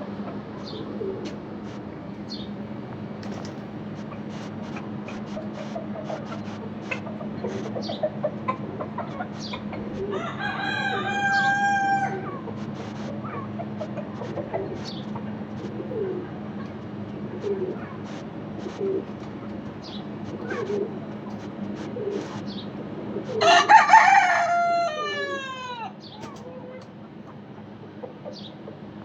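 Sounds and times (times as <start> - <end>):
hens clucking: 0.0 - 28.9
steady low hum: 0.0 - 29.0
small birds chirping: 0.5 - 1.3, 2.1 - 2.6, 3.3 - 9.8, 12.3 - 21.5, 22.1 - 22.8, 26.0 - 26.8, 28.2 - 28.6
rooster crowing: 10.0 - 12.5, 23.3 - 26.1.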